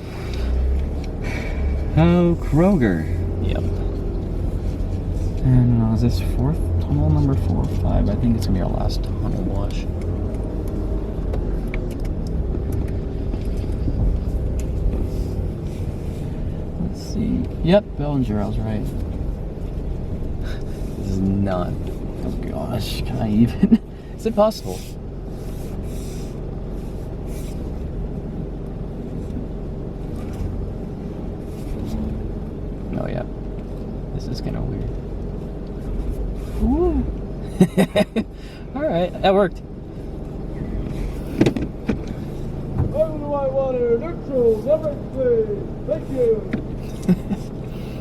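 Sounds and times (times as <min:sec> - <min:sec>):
car engine rumble from inside: 0:00.0 - 0:48.0.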